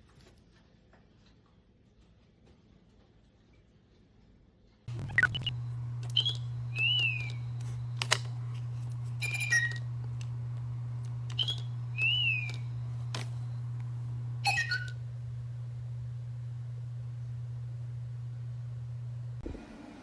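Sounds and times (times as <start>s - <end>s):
steady low hum: 4.9s - 20.0s
toy bird chirping and trilling: 5.1s - 5.5s.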